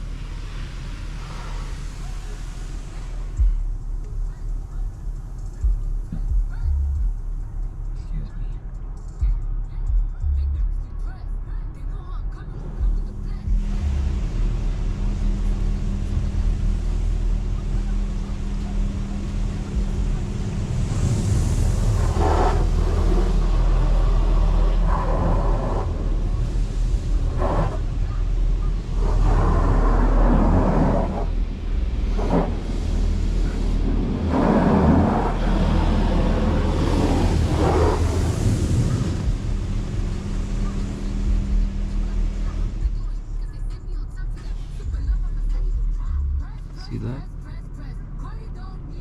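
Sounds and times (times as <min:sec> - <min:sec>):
water spray hitting car: 0:00.0 - 0:06.3, 0:13.3 - 0:42.9
hum: 0:00.0 - 0:49.0
machinery rumble: 0:00.0 - 0:49.0.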